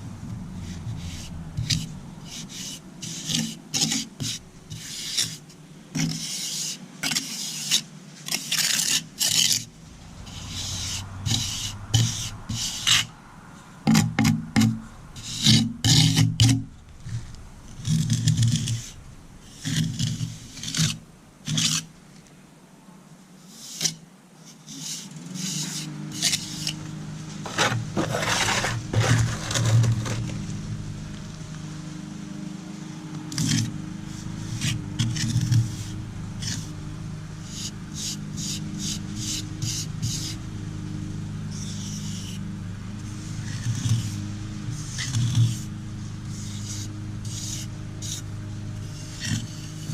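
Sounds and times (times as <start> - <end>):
engine hum: 0.0 - 23.2, 24.0 - 49.9
hand tool scraping concrete: 0.6 - 5.4, 6.0 - 9.7, 10.3 - 13.1, 13.9 - 21.9, 24.6 - 30.5, 44.8 - 45.7, 46.4 - 49.9.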